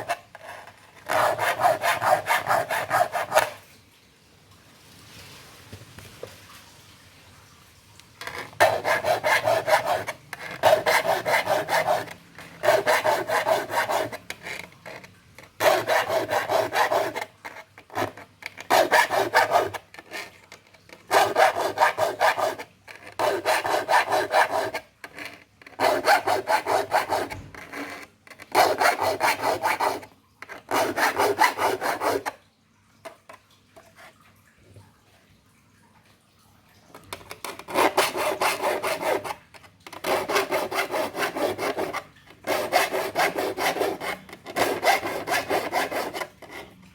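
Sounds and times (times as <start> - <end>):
file rasping on saw teeth: 0.0 - 3.6, 8.3 - 20.3, 21.1 - 32.4, 37.6 - 46.8.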